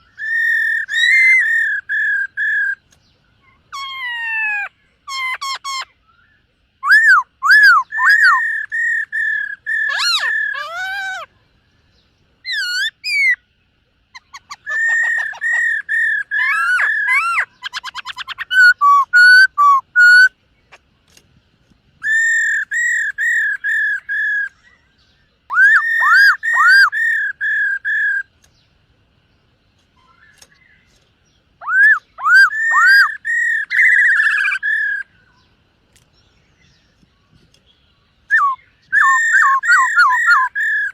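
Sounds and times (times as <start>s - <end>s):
bird singing whistled phrases: 0.0s - 2.8s, 3.4s - 11.3s, 12.5s - 13.4s, 14.2s - 20.4s, 22.0s - 28.3s, 31.6s - 35.5s, 38.3s - 40.9s.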